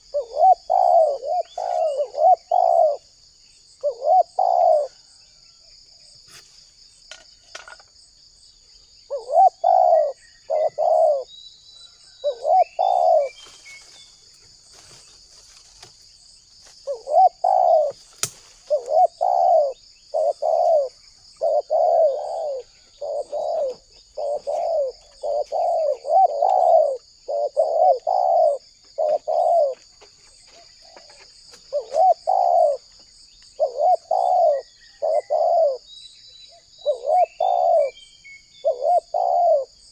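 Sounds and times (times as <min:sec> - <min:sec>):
dove cooing: 0:00.0 - 0:03.1, 0:03.8 - 0:05.2, 0:09.1 - 0:11.3, 0:12.2 - 0:13.6, 0:16.8 - 0:29.9, 0:30.5 - 0:33.0, 0:33.6 - 0:35.9, 0:36.5 - 0:38.0, 0:38.6 - 0:39.9.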